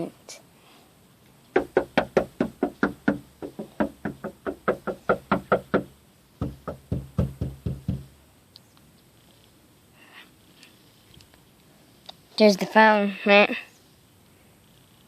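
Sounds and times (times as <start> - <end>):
knuckles knocking on door: 1.6 - 8.2.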